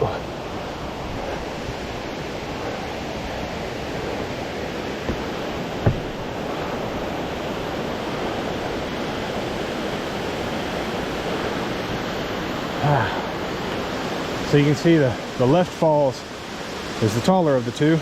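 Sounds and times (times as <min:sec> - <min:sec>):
waterfall rushing: 0:00.0 - 0:18.0
short knock: 0:05.8 - 0:06.1.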